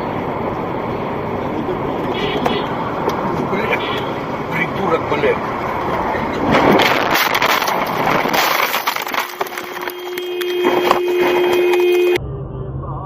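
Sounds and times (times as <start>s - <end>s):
car crash impact crunching: 6.4s - 12.2s.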